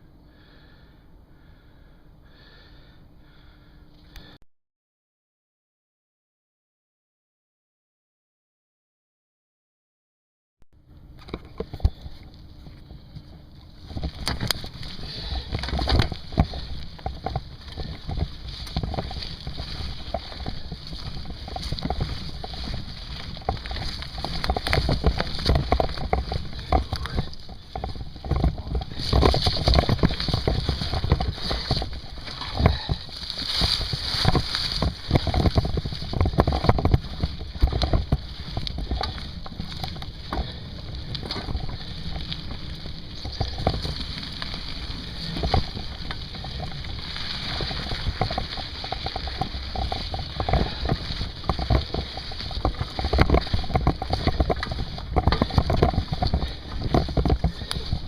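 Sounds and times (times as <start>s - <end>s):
bike knocking and rattling: 11.2s - 58.0s.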